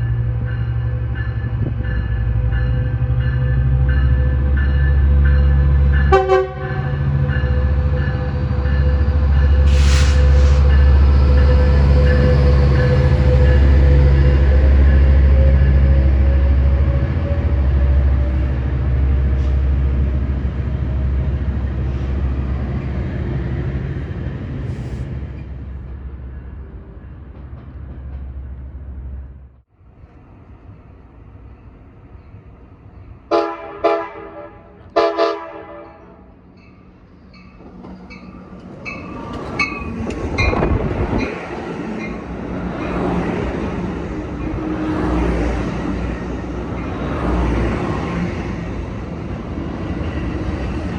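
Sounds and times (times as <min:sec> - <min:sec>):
locomotive bell ringing: 0:00.0 - 0:09.8
diesel locomotive engine drone: 0:00.0 - 0:50.9
train running past: 0:00.0 - 0:50.9
train horn blast: 0:06.0 - 0:07.2, 0:33.3 - 0:36.3.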